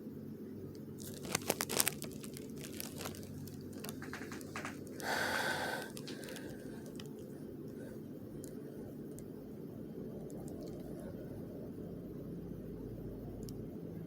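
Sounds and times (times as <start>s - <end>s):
wrapper crinkling and tearing: 1.0s - 5.0s.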